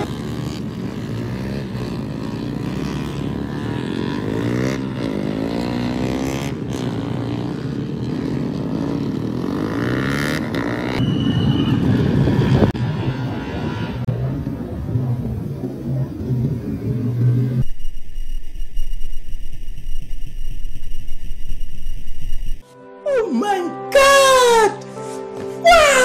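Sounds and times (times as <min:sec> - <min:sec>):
motorcycle engines revving: 0:00.0 - 0:17.7.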